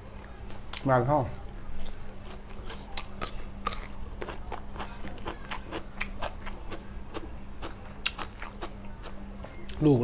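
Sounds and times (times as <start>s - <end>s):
person chewing wetly: 1.8s - 9.8s.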